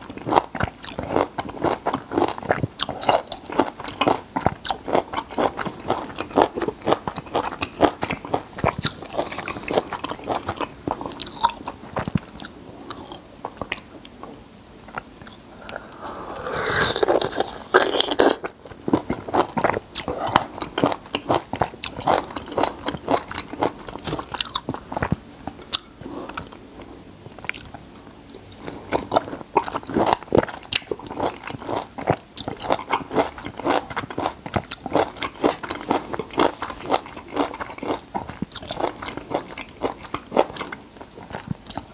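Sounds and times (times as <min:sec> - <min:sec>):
crunchy chewing of citrus: 0:00.0 - 0:26.6, 0:27.4 - 0:41.9.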